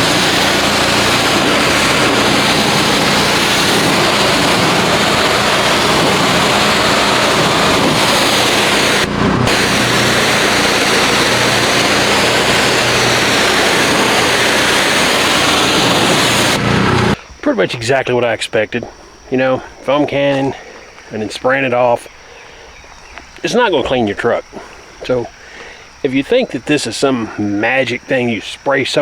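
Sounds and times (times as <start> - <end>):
pressure washer motor humming: 0.0 - 17.2
pressure washer water jet: 0.0 - 17.2.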